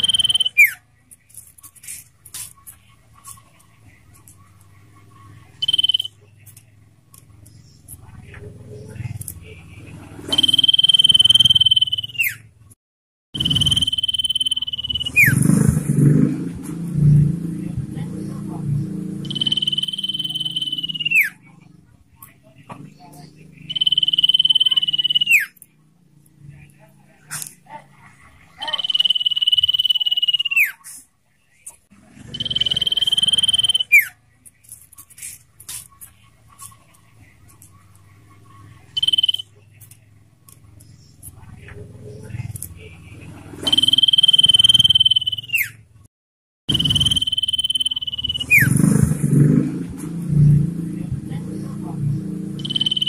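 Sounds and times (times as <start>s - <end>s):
bird trilled whistles: 10.3s - 12.4s, 13.4s - 15.4s, 19.3s - 21.4s, 23.7s - 25.6s, 28.8s - 30.8s, 43.6s - 45.8s, 46.7s - 48.8s
bird whistle sliding downward: 46.7s - 48.7s.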